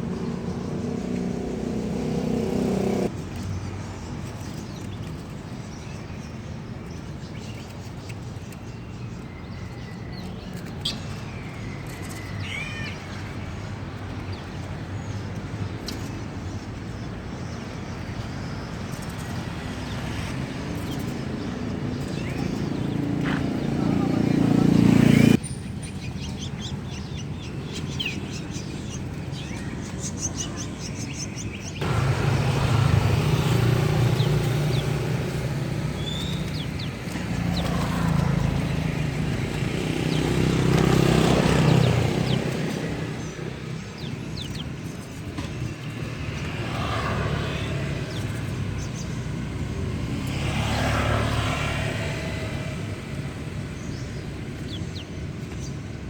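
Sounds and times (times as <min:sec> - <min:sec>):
motor vehicles passing: 0:00.0 - 0:26.0, 0:26.6 - 0:56.0
small birds chirping: 0:00.0 - 0:56.0
traffic noise: 0:00.0 - 0:56.0
low engine running: 0:31.8 - 0:42.6.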